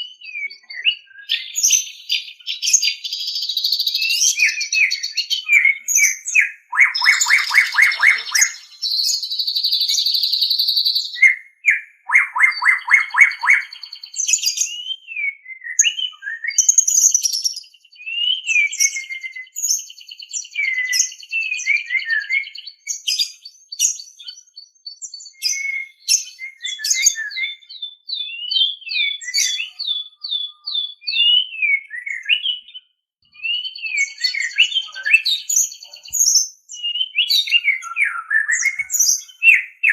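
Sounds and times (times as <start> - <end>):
bird singing: 0.0 - 39.9
whistled bird notes: 0.0 - 39.9
buzzy bird trill: 5.9 - 11.1.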